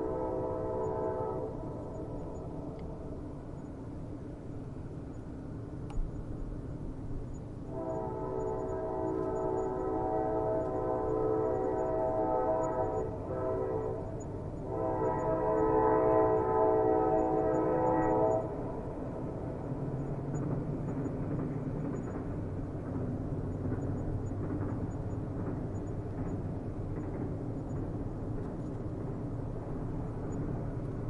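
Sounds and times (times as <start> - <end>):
train horn blasts: 0.0 - 2.0, 7.7 - 18.8
train rumbling: 0.0 - 31.0.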